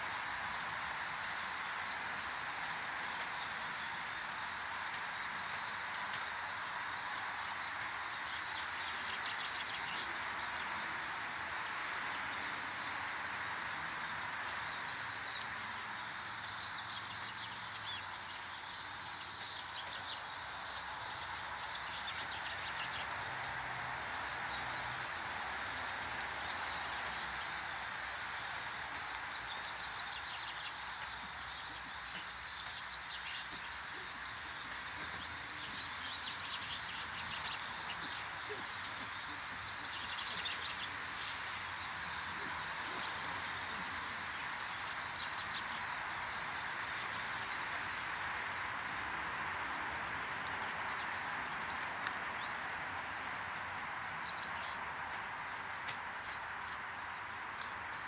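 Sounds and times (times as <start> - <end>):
outdoor hiss: 0.0 - 58.0
small birds chirping: 0.0 - 58.0.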